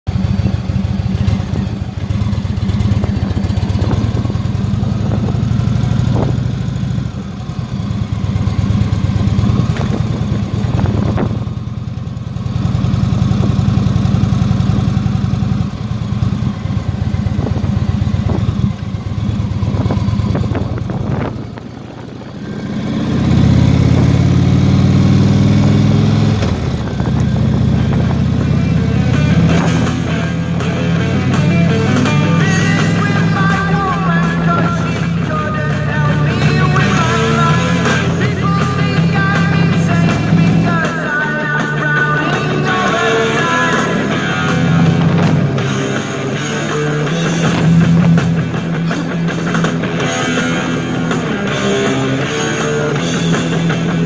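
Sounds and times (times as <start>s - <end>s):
motorcycle engine running: 0.1s - 54.0s.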